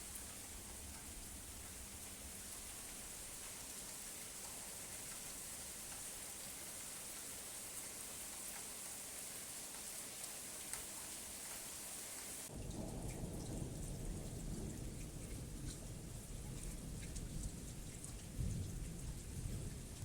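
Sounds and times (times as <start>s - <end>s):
raindrop ticks: 0.0s - 8.9s, 9.6s - 11.7s, 12.5s - 20.0s
steady rain hissing: 0.0s - 20.0s
low rumble of thunder: 12.5s - 20.0s.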